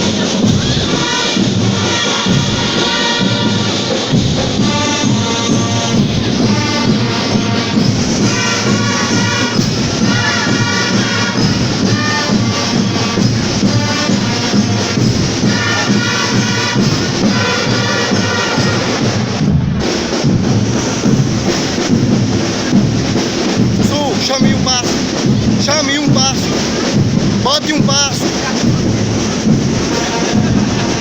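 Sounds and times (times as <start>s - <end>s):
brass horns playing: 0.0s - 20.0s, 27.6s - 31.0s
marching drums beating: 0.0s - 31.0s.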